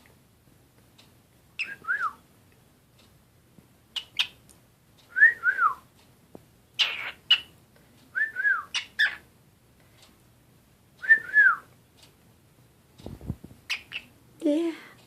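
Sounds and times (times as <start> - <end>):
bird chirps: 1.6 - 1.8, 4.0 - 4.4, 6.8 - 7.5, 8.6 - 9.2, 13.7 - 14.1
cockatiel whistling: 1.6 - 2.2, 8.2 - 9.2.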